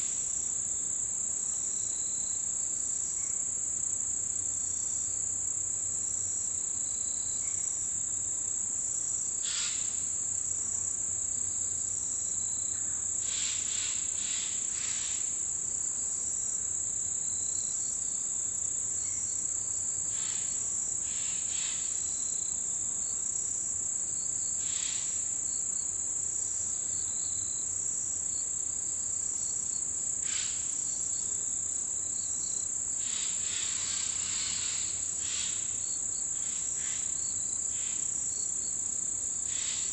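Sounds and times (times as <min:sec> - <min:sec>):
insects trilling: 0:05.2 - 0:39.9
low insect chirps: 0:09.4 - 0:39.9.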